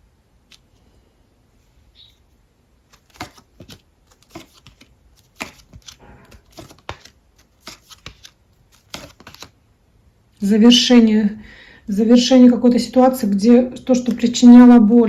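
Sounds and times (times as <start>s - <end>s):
cards snapping and rustling: 2.8s - 9.6s.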